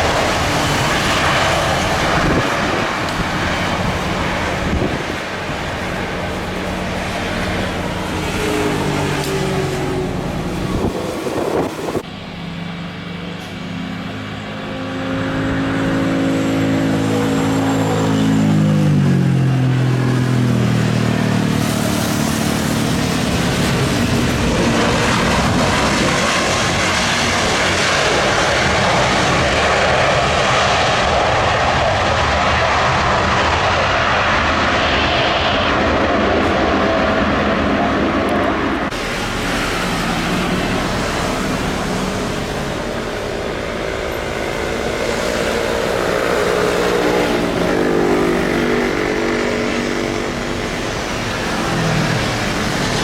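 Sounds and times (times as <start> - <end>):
jet airliner flying overhead: 0.0 - 53.0
low pitched drone: 32.8 - 53.0.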